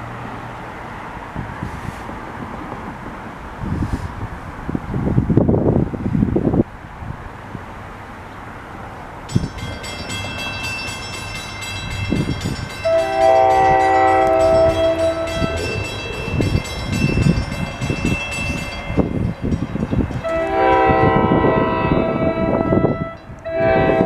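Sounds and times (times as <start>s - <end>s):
train rumbling: 0.0s - 24.0s
train horn blasts: 12.8s - 17.1s, 20.1s - 24.0s
high-pitched whine: 12.9s - 19.4s.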